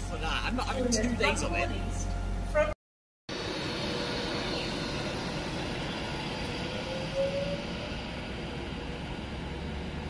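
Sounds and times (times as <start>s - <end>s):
train wheels rumbling on rail: 3.3s - 10.0s
rising wheel squeal: 3.8s - 9.9s.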